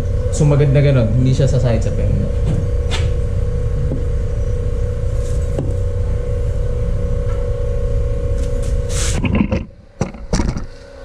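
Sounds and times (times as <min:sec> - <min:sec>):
machine hum: 0:00.0 - 0:11.0
short scrape: 0:08.6 - 0:09.7.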